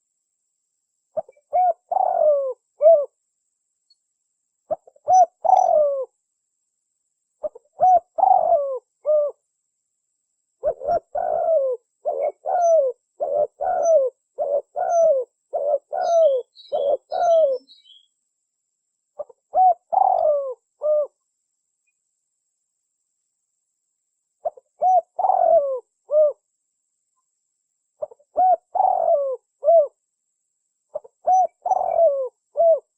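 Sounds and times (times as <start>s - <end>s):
dove cooing: 1.2s - 3.2s, 4.7s - 6.1s, 7.4s - 9.4s, 10.6s - 18.1s, 19.2s - 21.2s, 24.4s - 26.4s, 28.0s - 30.0s, 30.9s - 32.9s
small bird twittering: 4.7s - 6.1s, 10.6s - 18.2s.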